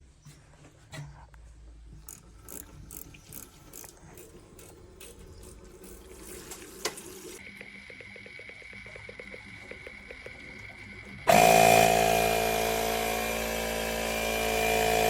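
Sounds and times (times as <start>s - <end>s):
fast ticking: 7.4s - 11.3s.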